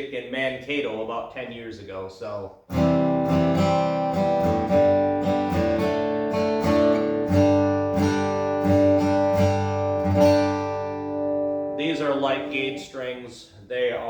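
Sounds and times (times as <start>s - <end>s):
acoustic guitar strumming: 2.7s - 13.1s.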